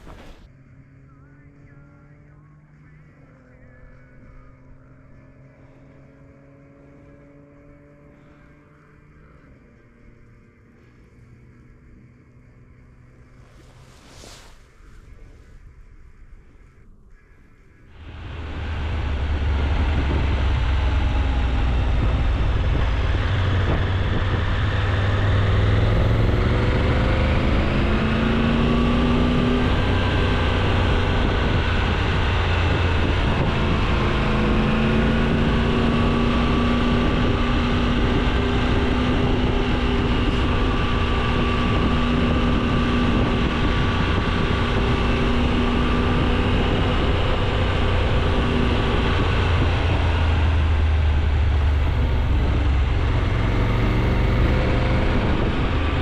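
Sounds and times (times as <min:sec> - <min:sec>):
wind rushing over microphone: 0:00.0 - 0:00.5, 0:13.1 - 0:16.8, 0:18.0 - 0:56.0
motorcycle engine accelerating: 0:00.0 - 0:14.4, 0:17.9 - 0:56.0.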